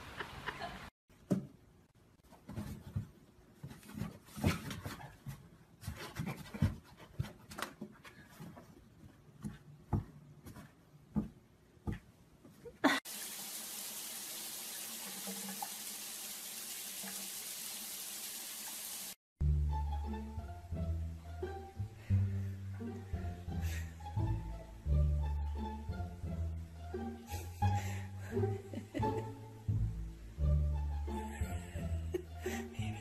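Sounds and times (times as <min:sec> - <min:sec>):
water running from a tap: 0:13.1 - 0:19.2.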